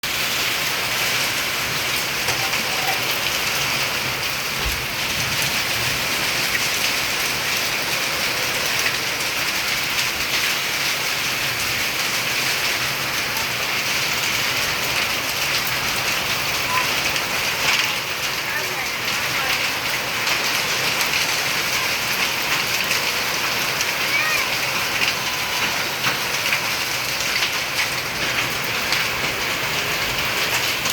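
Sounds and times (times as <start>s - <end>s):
heavy rain pattering: 0.0s - 30.9s.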